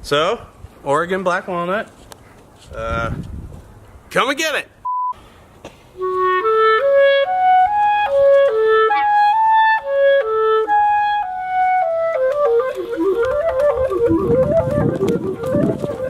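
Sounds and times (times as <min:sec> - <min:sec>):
clarinet melody: 0:06.0 - 0:16.0
musical accompaniment: 0:06.0 - 0:16.0.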